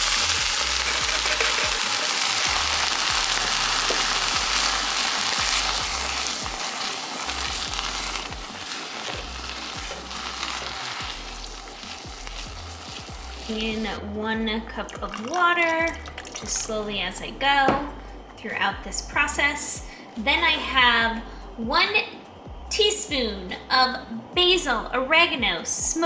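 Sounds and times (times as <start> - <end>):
food sizzling in hot pan: 0.0 - 14.0.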